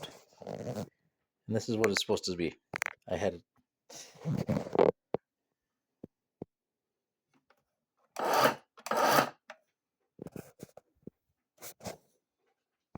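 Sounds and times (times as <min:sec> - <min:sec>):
rasping scrapes: 0:08.2 - 0:09.4.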